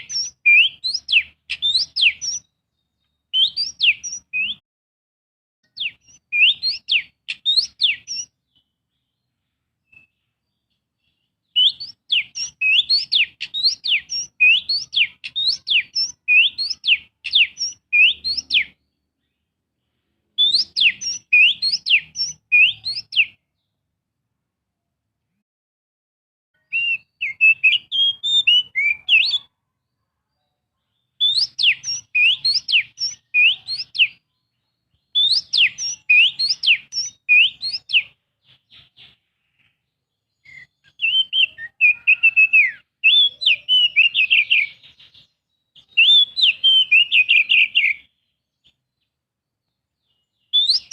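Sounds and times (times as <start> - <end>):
bird singing falling whistled notes: 0.0 - 2.5, 3.1 - 4.6, 5.7 - 8.3, 11.5 - 18.8, 20.4 - 23.4, 26.6 - 29.5, 31.2 - 34.2, 34.9 - 39.1, 40.3 - 48.7, 50.0 - 50.9.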